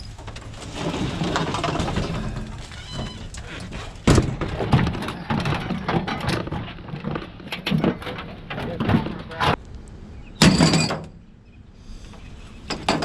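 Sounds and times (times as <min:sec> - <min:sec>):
scrap metal knocking and clanking: 0:00.1 - 0:09.6, 0:12.7 - 0:13.0.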